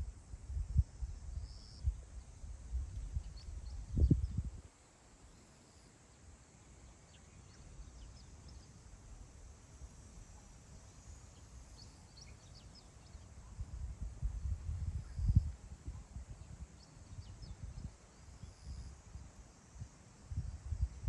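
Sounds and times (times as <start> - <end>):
wind blowing over grassland: 0.0 - 5.5, 7.2 - 21.0
faint bird chirps: 6.8 - 9.0, 9.9 - 19.2.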